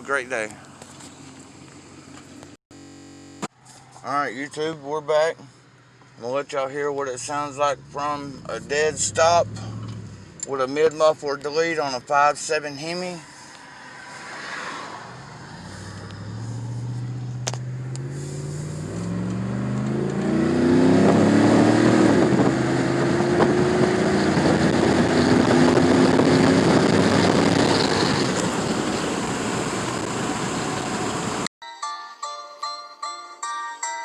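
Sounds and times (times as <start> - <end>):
car engine accelerating hard: 7.2 - 10.6, 14.1 - 31.5.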